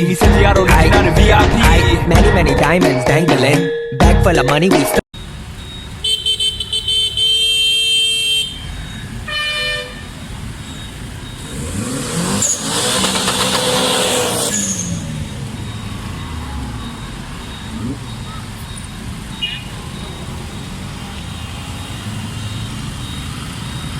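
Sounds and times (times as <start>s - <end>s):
car horn pulses: 5.2s - 23.9s
car driving past: 10.6s - 23.9s.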